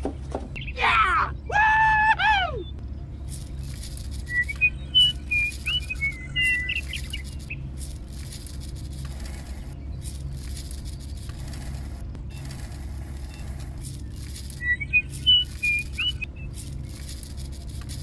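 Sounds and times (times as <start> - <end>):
small birds chirping: 0.1 - 1.5, 2.4 - 18.0
low hum: 1.3 - 18.0.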